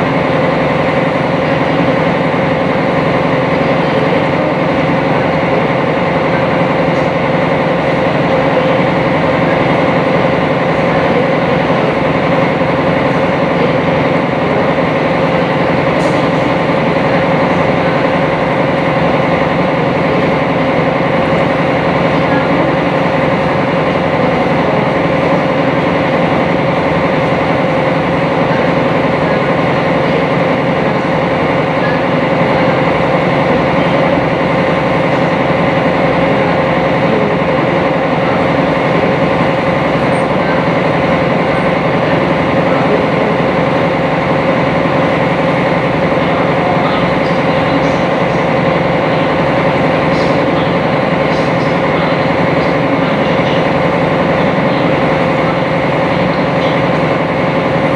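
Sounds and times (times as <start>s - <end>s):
boat engine droning: 0.0s - 57.9s.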